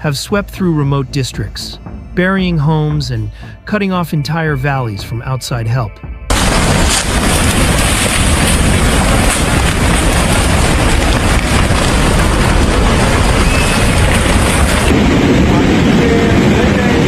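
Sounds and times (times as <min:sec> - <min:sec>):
loud steady rushing noise: 0:06.3 - 0:17.0.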